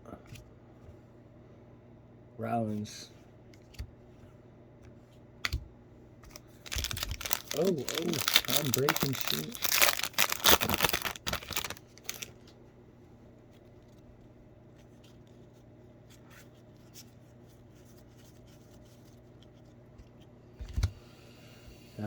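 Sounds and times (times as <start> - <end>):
low steady hum: 0.0 - 22.0
cards rustling: 6.3 - 12.6.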